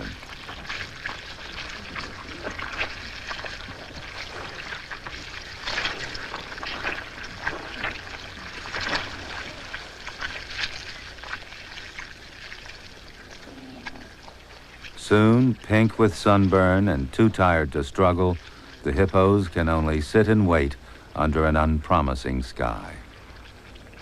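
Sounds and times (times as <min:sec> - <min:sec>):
splashing in mud and water: 0:00.0 - 0:14.3.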